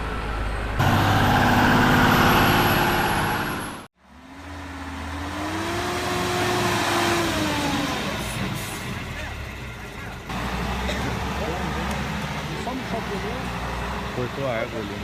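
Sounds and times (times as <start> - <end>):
engine rising in pitch: 0.0 - 8.4
truck diesel engine running: 0.0 - 15.0.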